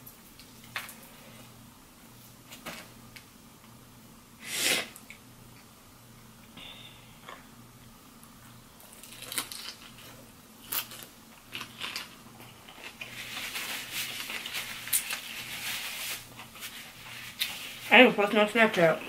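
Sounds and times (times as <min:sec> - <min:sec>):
crunchy chewing of fried chicken: 0:08.8 - 0:15.5.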